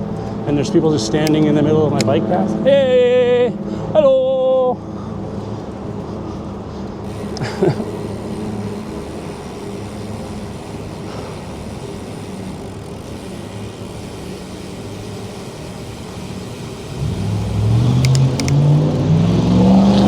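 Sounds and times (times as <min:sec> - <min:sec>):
street traffic hum: 0:00.0 - 0:20.0
motor vehicle accelerating: 0:04.8 - 0:20.0.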